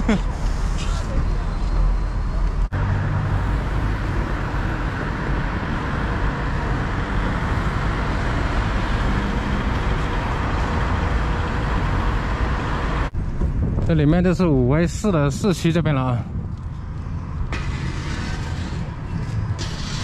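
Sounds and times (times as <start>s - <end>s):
road traffic rumble and hiss: 0.0s - 20.0s.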